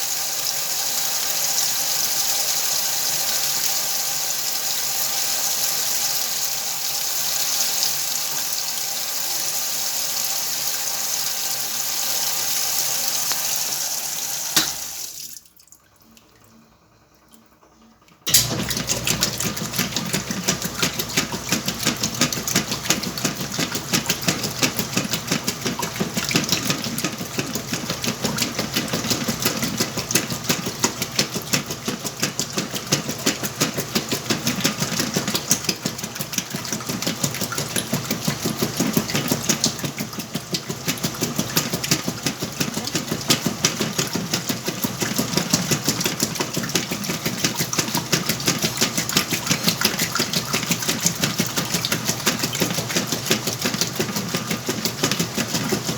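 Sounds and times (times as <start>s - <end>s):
washing machine hum: 0.0s - 55.9s
washing machine clattering: 14.4s - 15.2s, 18.2s - 55.9s.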